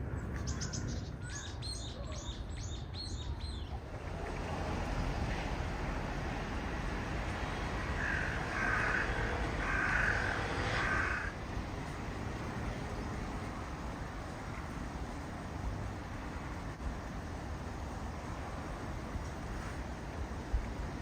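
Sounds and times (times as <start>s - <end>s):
bird harsh drawn-out calls: 8.0s - 11.3s.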